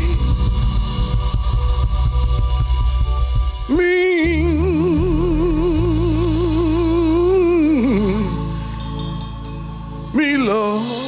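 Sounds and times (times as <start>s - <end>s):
low bass line: 0.0s - 11.0s
person singing long vibrato note: 10.2s - 11.0s.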